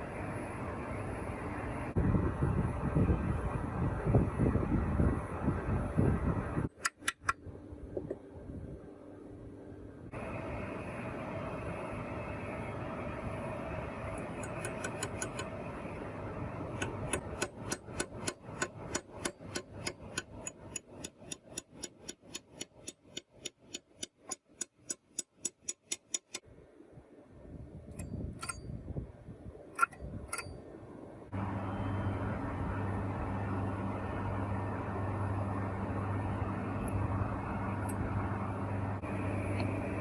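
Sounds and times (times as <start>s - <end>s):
machine hum: 0.0s - 29.0s, 29.6s - 40.0s
low hum: 26.4s - 40.0s.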